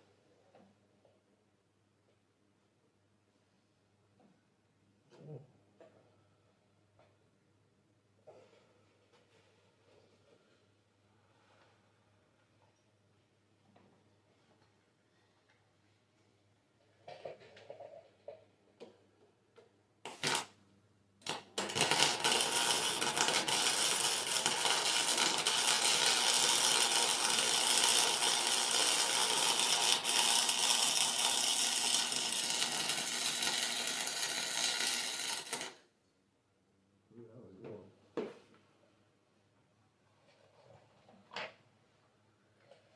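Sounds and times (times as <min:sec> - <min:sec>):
welding arc crackling: 0:20.1 - 0:20.5, 0:21.2 - 0:35.7.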